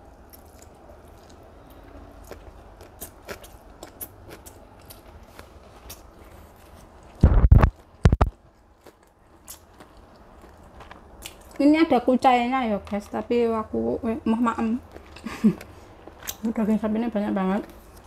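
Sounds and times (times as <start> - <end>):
chewing with mouth clicks: 0.0 - 11.6, 14.8 - 16.5.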